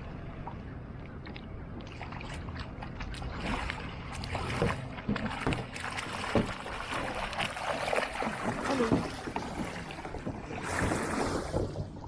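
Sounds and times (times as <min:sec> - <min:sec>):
paddle splashing in water: 0:00.4 - 0:12.0
loud splashes or knocks: 0:03.4 - 0:12.0.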